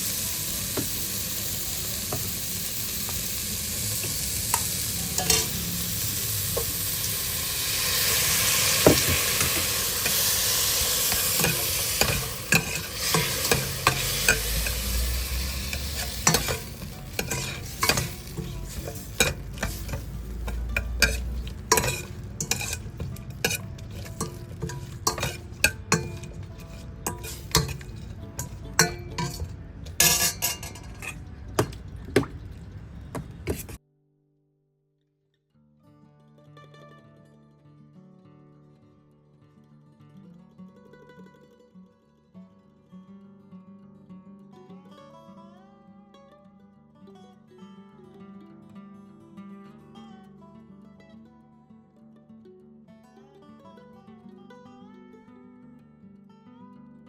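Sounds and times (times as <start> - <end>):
food sizzling in a pan: 0.0 - 31.4
utensil scraping a pan: 0.0 - 32.0, 33.2 - 33.8.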